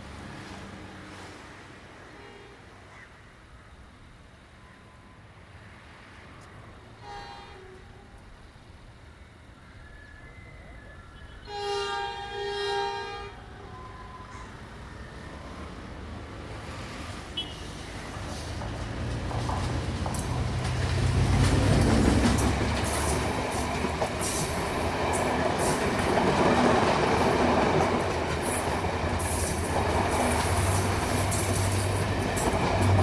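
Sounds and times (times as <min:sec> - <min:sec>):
train horn blasts: 0:02.0 - 0:02.7, 0:07.0 - 0:08.2, 0:11.4 - 0:14.2
diesel train rumble: 0:10.7 - 0:33.0.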